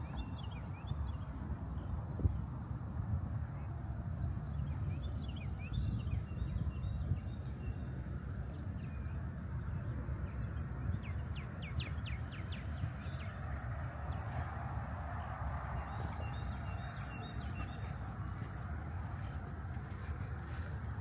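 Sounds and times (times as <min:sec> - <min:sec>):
steady low rumble: 0:03.0 - 0:21.0
birds chirping: 0:10.5 - 0:21.0.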